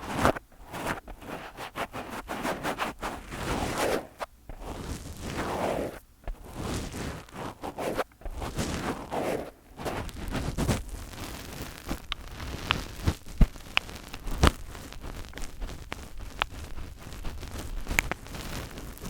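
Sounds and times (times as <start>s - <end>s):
fingers rubbing on microphone: 0.0s - 19.0s.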